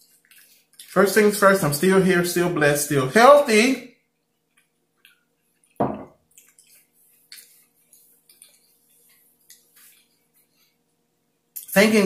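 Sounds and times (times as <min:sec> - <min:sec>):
wet chewing mouth sounds: 0:04.2 - 0:10.8.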